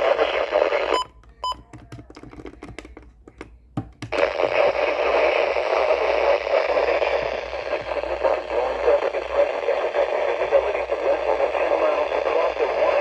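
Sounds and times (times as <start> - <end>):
radio static hiss: 0.0 - 1.1, 4.1 - 13.0.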